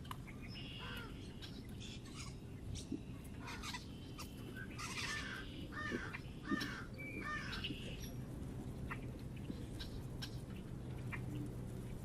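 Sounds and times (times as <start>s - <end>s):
birds chirping: 0.0s - 12.0s
birds harsh repeated calls: 0.0s - 12.0s.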